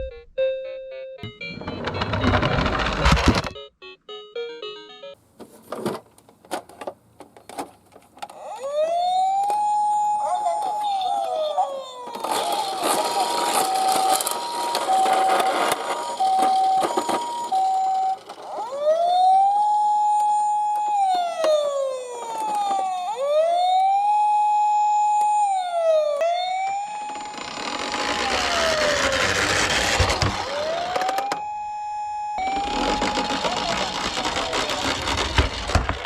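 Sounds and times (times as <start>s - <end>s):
wailing siren: 8.3s - 35.8s
hi-lo two-tone siren: 8.4s - 35.6s.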